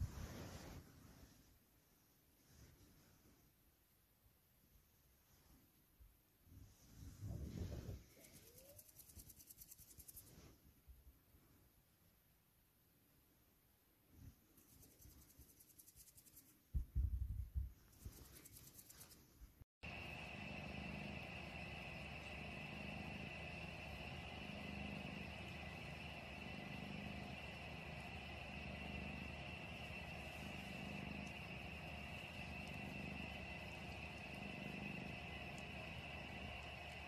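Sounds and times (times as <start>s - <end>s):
cat purring: 19.8s - 37.0s
faint high hum: 19.8s - 37.0s.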